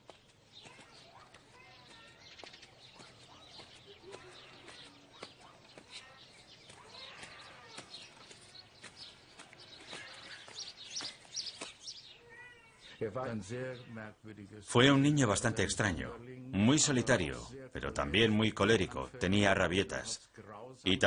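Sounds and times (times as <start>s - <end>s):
small birds chirping: 0.0s - 20.2s
children's voices: 0.5s - 13.0s.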